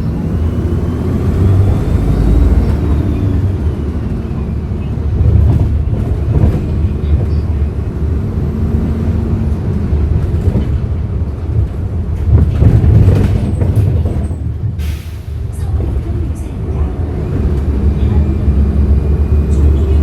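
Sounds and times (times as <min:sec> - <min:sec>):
bus engine rumbling: 0:00.0 - 0:20.0.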